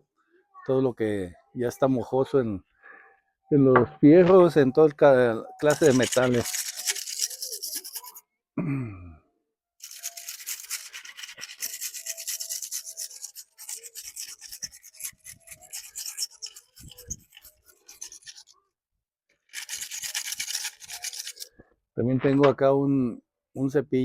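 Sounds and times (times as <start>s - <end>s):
wire brush scrubbing metal: 5.6s - 8.2s, 9.8s - 18.5s, 19.5s - 21.5s.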